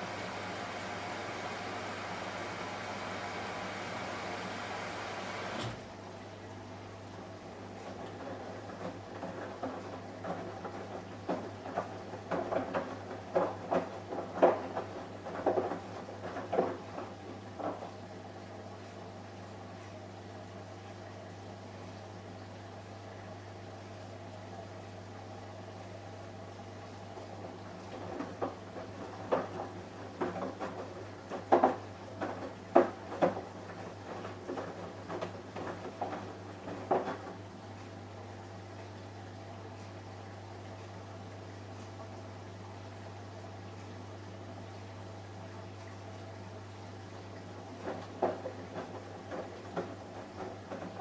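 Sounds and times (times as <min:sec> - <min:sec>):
laundry tumbling in washing machine: 0:00.0 - 0:06.0, 0:07.5 - 0:19.9, 0:26.4 - 0:38.8, 0:45.6 - 0:51.0
washing machine hum: 0:00.0 - 0:51.0.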